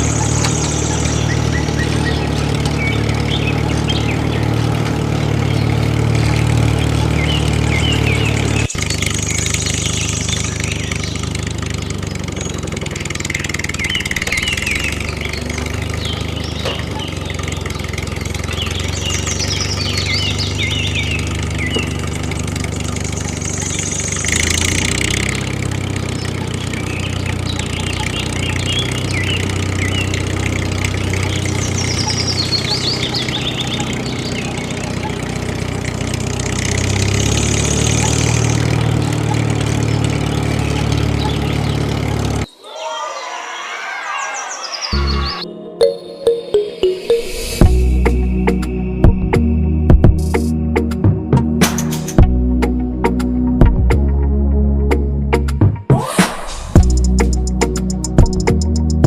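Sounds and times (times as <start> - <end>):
small tractor motor humming: 0.0 - 42.5, 56.3 - 59.0.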